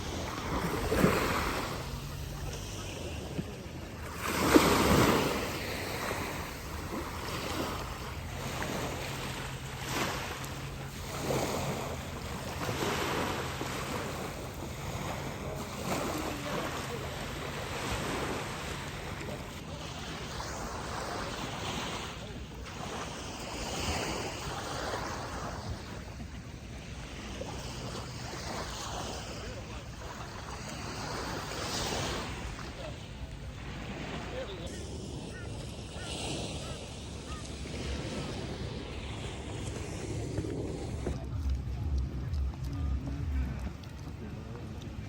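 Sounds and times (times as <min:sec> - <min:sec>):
ocean surf breaking: 0:00.0 - 0:45.0
wind buffeting microphone: 0:33.2 - 0:45.0.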